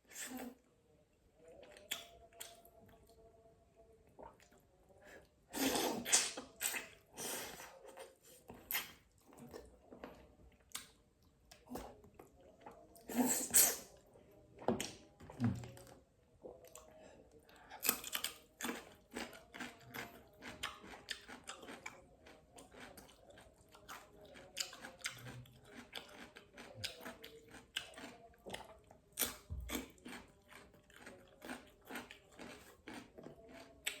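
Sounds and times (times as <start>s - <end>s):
person chewing and smacking: 17.8s - 34.0s.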